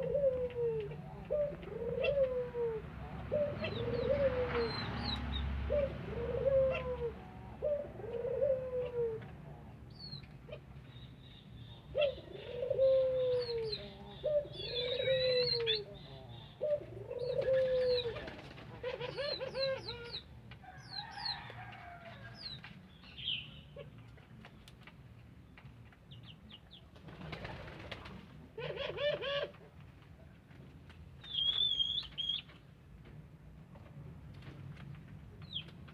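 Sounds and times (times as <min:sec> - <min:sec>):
dove cooing: 0:00.0 - 0:09.3, 0:11.9 - 0:20.2, 0:27.3 - 0:29.7.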